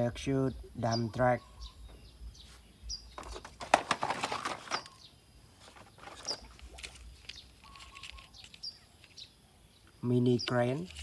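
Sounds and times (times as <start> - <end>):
small birds chirping: 0.0 - 11.0
rustling and clicking: 3.1 - 5.0, 5.6 - 9.3.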